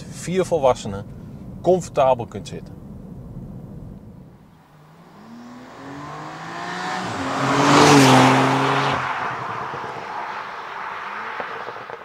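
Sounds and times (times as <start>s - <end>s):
car engine accelerating hard: 3.7s - 12.0s.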